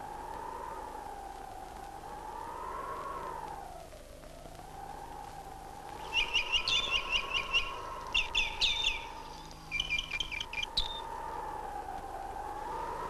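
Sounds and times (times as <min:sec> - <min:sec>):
small birds chirping: 0:05.8 - 0:11.2.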